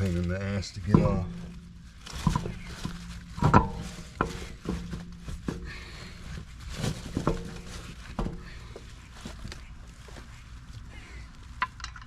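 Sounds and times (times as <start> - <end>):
metal clanks and knocks: 0.0 - 8.9.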